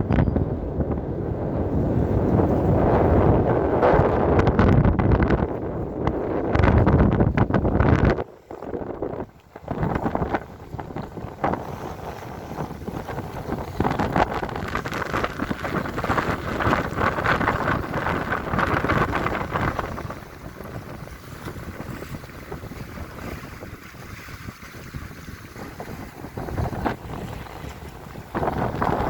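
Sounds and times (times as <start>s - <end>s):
sea waves washing in: 0.0s - 29.0s
wind buffeting microphone: 0.0s - 29.0s.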